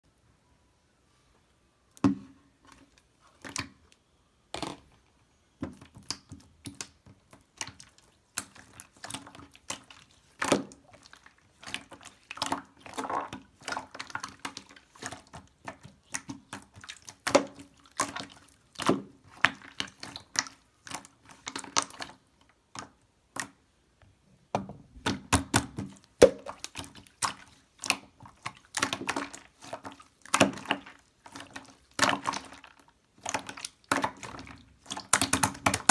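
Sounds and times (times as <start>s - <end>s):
slime squished by hand: 25.0s - 35.9s.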